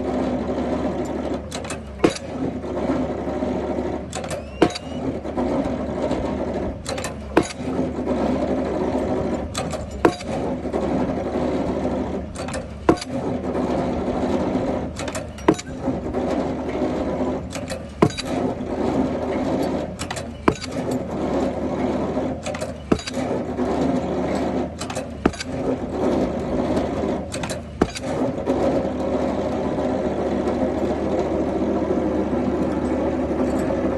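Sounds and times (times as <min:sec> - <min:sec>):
pile driver engine running: 0:00.0 - 0:33.9
hammer striking pile: 0:10.0 - 0:10.4.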